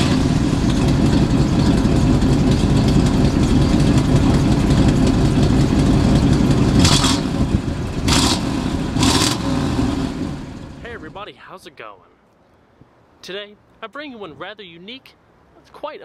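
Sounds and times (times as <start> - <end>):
engine exhaust low rumble: 0.0 - 11.2.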